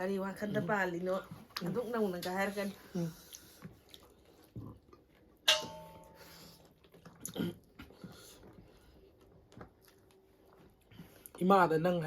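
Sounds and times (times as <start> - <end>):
utensil clinking on a dish: 5.5 - 6.3.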